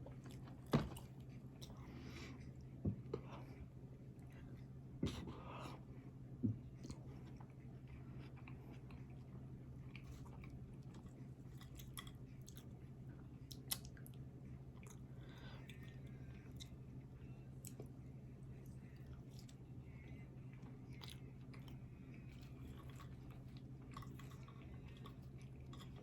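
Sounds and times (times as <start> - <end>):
steady low hum: 0.0 - 26.0
person chewing food: 6.6 - 16.8, 20.5 - 26.0.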